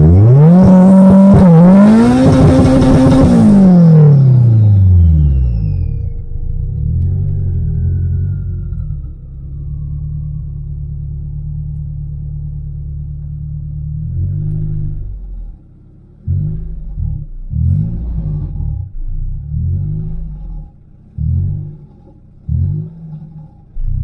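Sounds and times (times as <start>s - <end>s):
car engine running: 0.0s - 24.0s
engine throttle blips: 0.0s - 24.0s
faint falling whistle: 4.7s - 10.8s.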